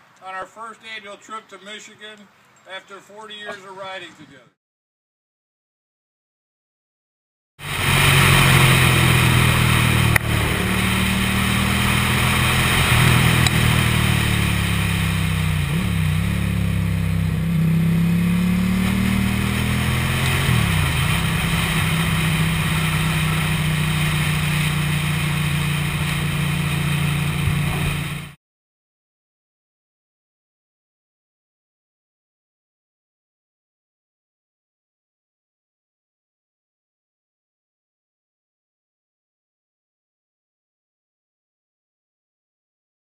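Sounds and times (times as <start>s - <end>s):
motorcycle engine running: 7.6s - 28.4s.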